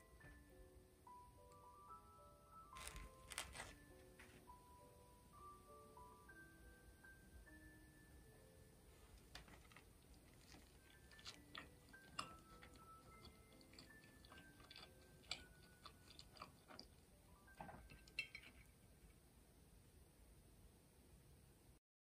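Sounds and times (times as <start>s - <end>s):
person chewing sandwich: 2.7s - 4.4s, 9.2s - 17.2s
mouth clicks and small crunches: 2.8s - 3.8s, 9.2s - 18.8s.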